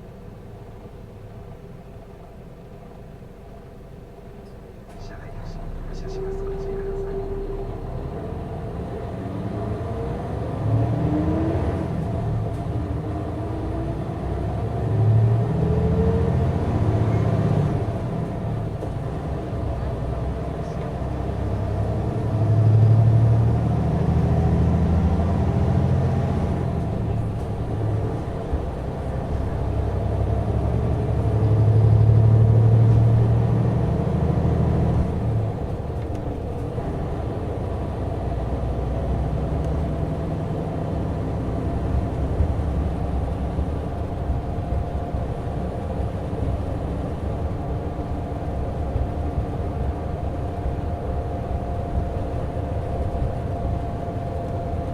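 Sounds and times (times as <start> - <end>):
diesel engine drone: 0.0 - 54.9
road noise: 0.0 - 54.9.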